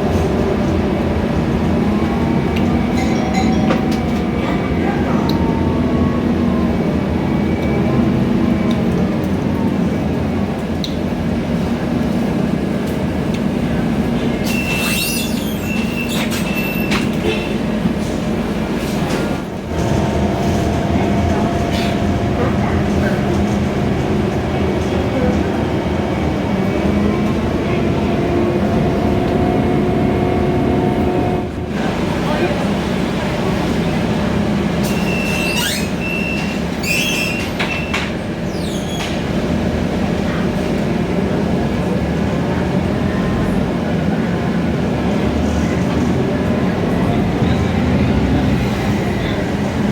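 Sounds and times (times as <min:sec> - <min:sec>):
bus engine and road rumble: 0:00.0 - 0:49.9
high squeals: 0:14.4 - 0:17.1, 0:34.8 - 0:39.1.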